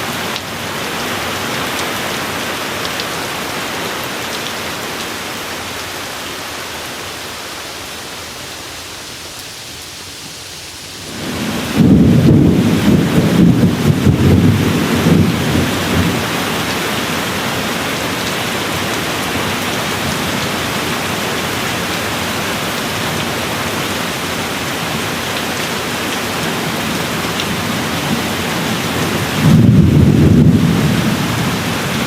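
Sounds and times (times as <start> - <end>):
heavy rain: 0.0 - 32.0
thunder rolling: 11.0 - 16.5, 29.2 - 31.7.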